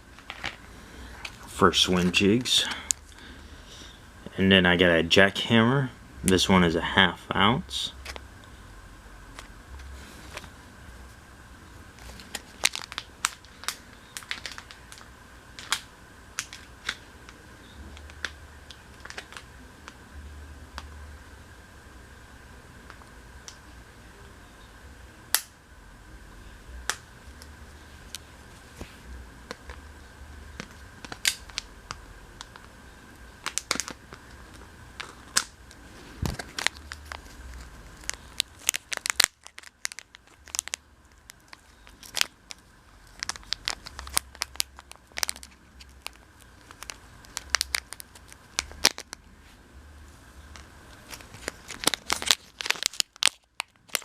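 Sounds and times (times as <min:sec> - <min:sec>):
plastic and cardboard crinkling: 0:12.0 - 0:15.8, 0:17.8 - 0:19.5, 0:33.4 - 0:49.2, 0:50.4 - 0:54.0
packaging sharp clicks: 0:30.6 - 0:32.7, 0:36.2 - 0:49.2, 0:50.6 - 0:54.0.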